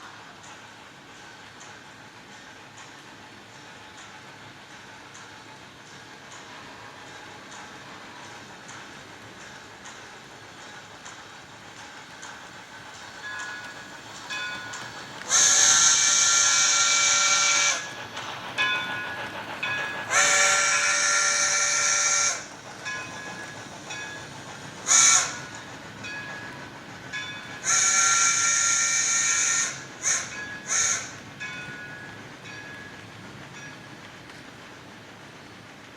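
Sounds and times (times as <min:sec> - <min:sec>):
model train steam whistle: 0:15.3 - 0:18.0, 0:20.1 - 0:22.5, 0:24.8 - 0:25.6, 0:27.6 - 0:31.2.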